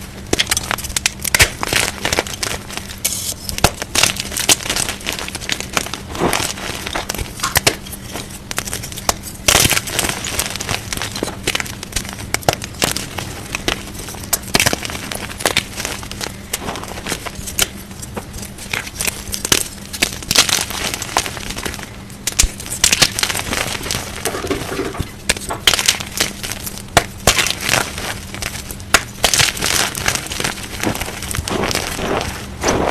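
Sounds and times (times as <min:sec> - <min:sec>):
chalk blocks crunching: 0:00.3 - 0:32.9.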